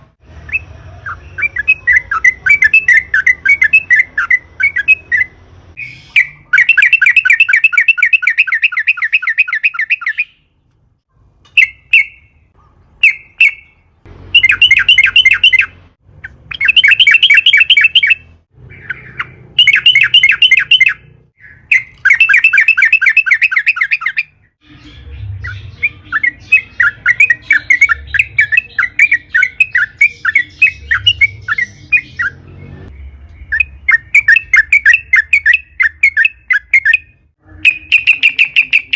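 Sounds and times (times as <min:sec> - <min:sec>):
bird singing rattling chatter: 0:14.4 - 0:38.9.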